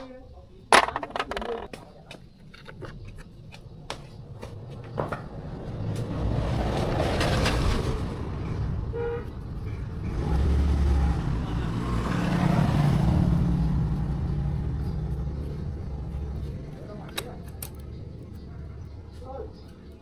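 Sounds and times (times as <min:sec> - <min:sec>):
low traffic rumble: 0:00.0 - 0:20.0
vehicles passing by: 0:00.0 - 0:20.0.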